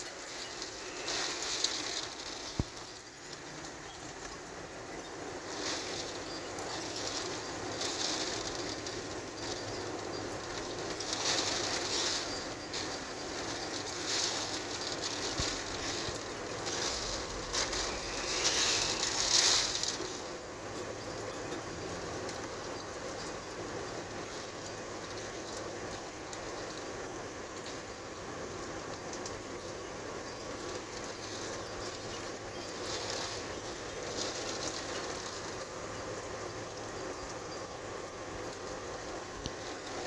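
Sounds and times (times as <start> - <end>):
wind gust and rain: 0.0 - 40.0.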